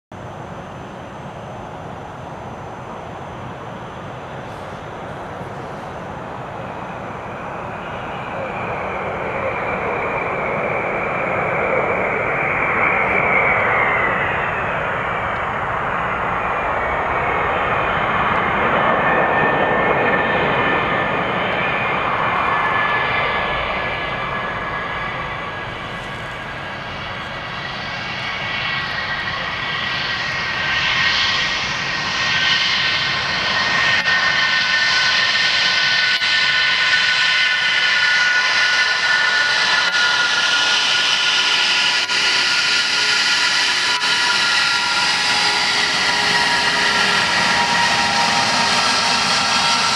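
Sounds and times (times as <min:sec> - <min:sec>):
jet engines roaring: 0:00.2 - 0:49.9
high-pitched whines: 0:02.2 - 0:49.9
whining tone sliding down: 0:32.8 - 0:49.9.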